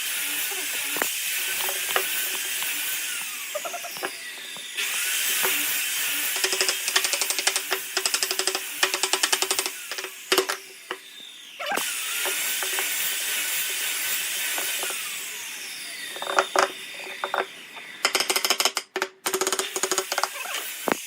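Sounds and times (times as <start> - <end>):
small power tool whining: 0.0 - 18.7, 19.3 - 21.0
rapid ratchet-like clicking: 5.5 - 10.6.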